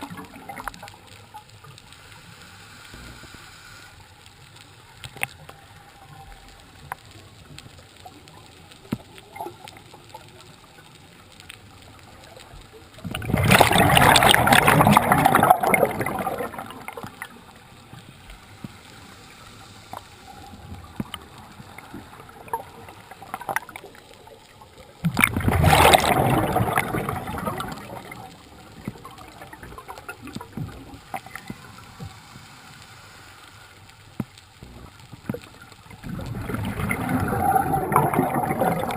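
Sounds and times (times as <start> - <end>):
faint clicking and crackling: 0.0 - 38.9
bubbles from diver exhaling: 13.1 - 17.0, 25.2 - 28.3, 36.0 - 38.9.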